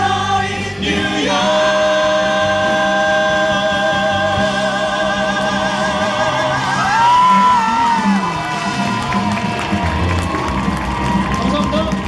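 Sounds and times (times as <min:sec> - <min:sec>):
male singers holding harmony: 0:00.0 - 0:08.8
musical accompaniment: 0:00.0 - 0:12.0.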